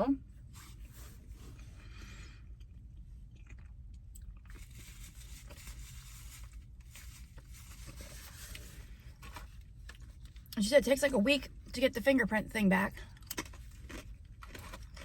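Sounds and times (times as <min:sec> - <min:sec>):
person chewing food: 0:00.8 - 0:10.6, 0:13.0 - 0:15.0.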